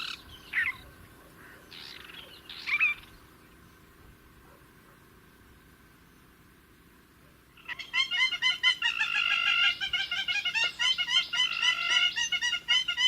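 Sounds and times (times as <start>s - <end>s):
bird calling harsh notes: 0.0s - 3.5s, 7.5s - 13.0s.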